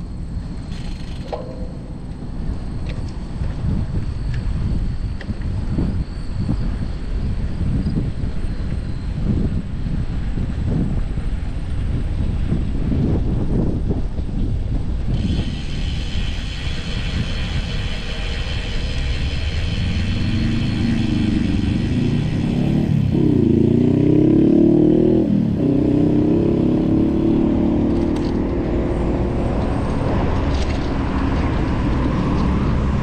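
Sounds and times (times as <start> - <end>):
wind rumbling on microphone: 0.0 - 33.0
car accelerating: 15.5 - 33.0.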